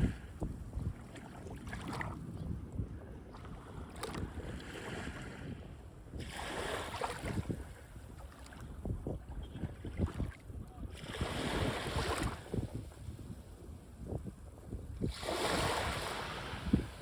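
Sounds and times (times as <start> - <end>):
wind on microphone: 0.0 - 17.0
waves breaking on beach: 6.2 - 7.6, 10.9 - 12.7, 15.1 - 17.0.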